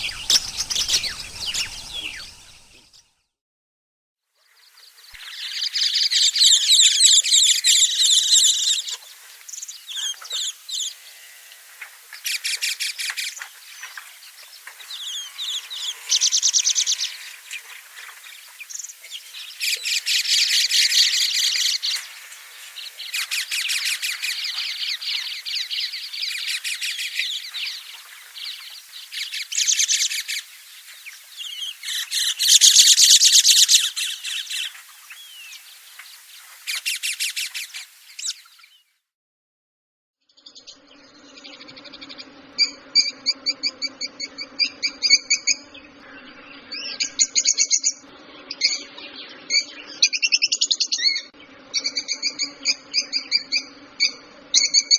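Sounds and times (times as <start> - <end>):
lovebirds chattering: 0.0 - 3.0, 8.2 - 38.7.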